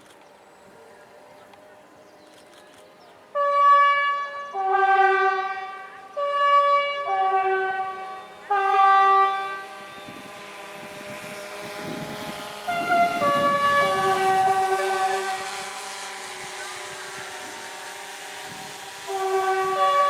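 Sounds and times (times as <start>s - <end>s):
rumble of approaching train: 0.0s - 20.0s
two-note train horn: 3.3s - 11.6s, 12.4s - 20.0s.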